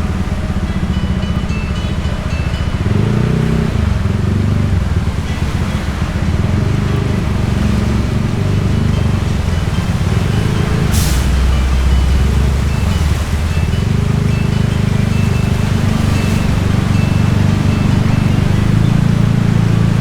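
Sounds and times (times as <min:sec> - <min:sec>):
motorbike engine running: 0:00.0 - 0:20.0.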